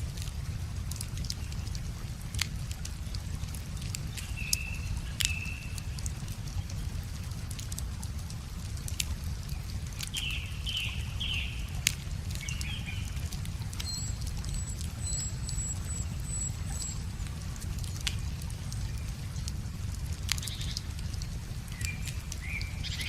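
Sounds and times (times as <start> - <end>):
wood fire crackling: 0.0 - 23.0
river water rushing: 9.3 - 23.0
birds chirping: 9.5 - 19.6.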